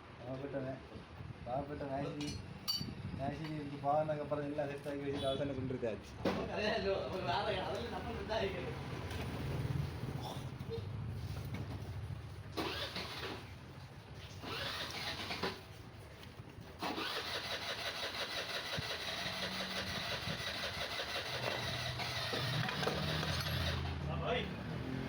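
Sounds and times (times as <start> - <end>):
scooter engine starting and running: 12.5 - 13.6, 14.4 - 15.7, 16.8 - 24.0.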